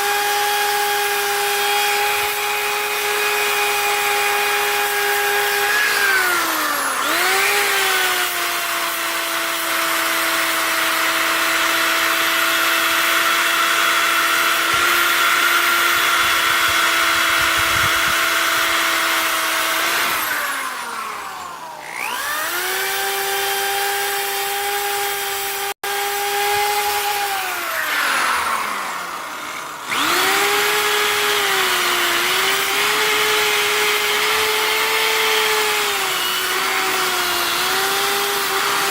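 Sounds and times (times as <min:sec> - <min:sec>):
power tool motor whine: 0:00.0 - 0:38.9
abrasive wheel grinding: 0:01.6 - 0:23.8.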